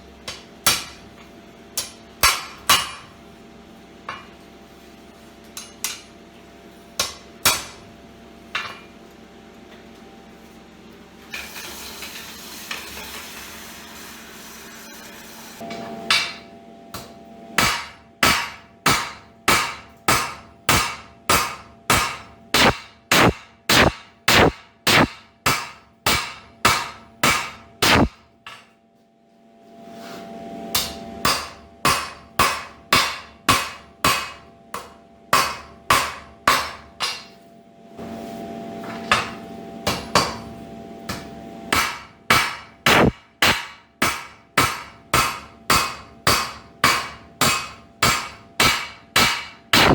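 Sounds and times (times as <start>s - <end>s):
hammer striking steel on anvil: 0.2s - 1.2s, 1.8s - 3.2s, 5.4s - 6.2s, 7.0s - 7.9s, 8.5s - 8.9s, 15.6s - 28.8s, 30.7s - 37.4s, 39.0s - 49.9s
steady hum: 14.2s - 28.6s, 29.2s - 43.2s.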